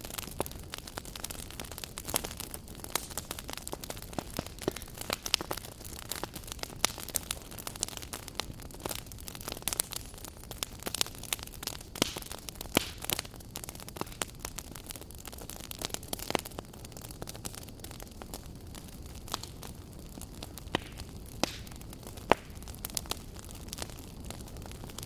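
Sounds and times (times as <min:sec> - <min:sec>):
fire burning with low rumble: 0:00.0 - 0:25.0
fire crackles and pops: 0:00.0 - 0:25.0.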